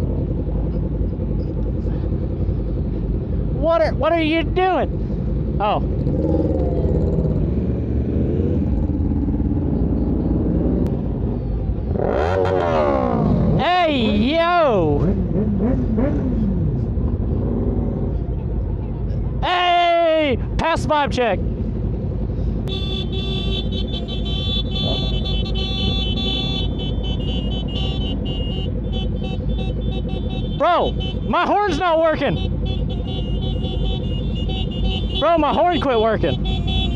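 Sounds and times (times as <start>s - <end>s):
motorcycle engine rumbling: 0.0s - 36.9s
motorcycle horn buzzing: 22.7s - 31.3s, 32.3s - 36.9s.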